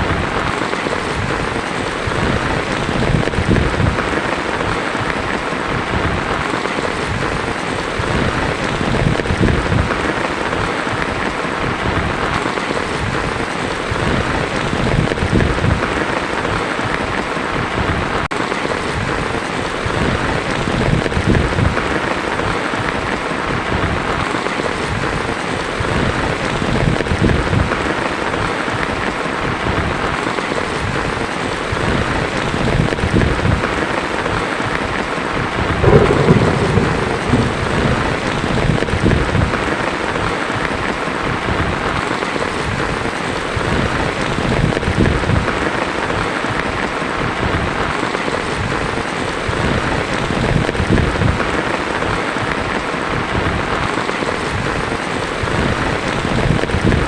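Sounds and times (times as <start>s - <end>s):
thunder clap: 0.0s - 10.7s, 35.4s - 42.8s
thunder rumbling: 0.0s - 10.7s, 35.4s - 46.5s
heavy rain on a tin roof: 0.0s - 57.0s.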